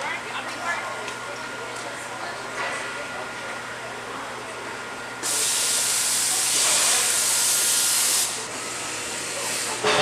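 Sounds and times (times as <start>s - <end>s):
loud steady hiss: 5.2s - 8.5s.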